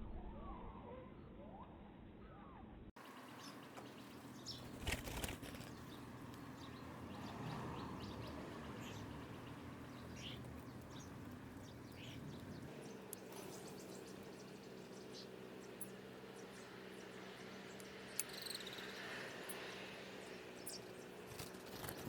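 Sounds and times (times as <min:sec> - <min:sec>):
outdoor background noise: 0:00.0 - 0:22.0
small birds chirping: 0:03.0 - 0:22.0.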